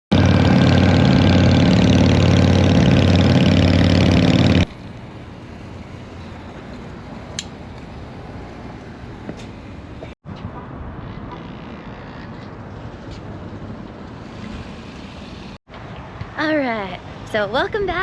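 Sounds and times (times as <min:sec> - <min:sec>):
motorcycle engine running: 0:00.1 - 0:04.7.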